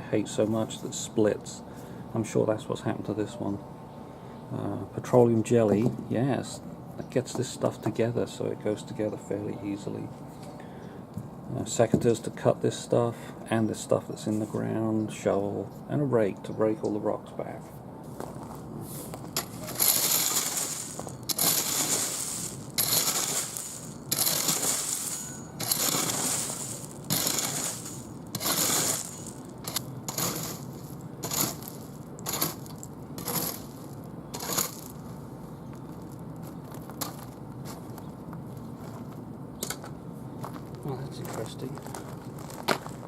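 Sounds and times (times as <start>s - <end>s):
garden tool scraping gravel: 18.2s - 38.0s.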